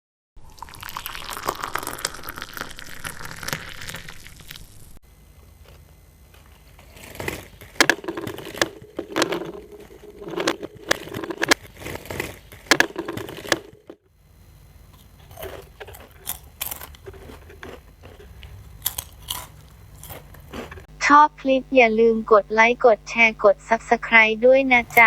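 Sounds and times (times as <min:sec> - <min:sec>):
ice cream cone crunching: 0:01.3 - 0:04.7, 0:14.9 - 0:20.9.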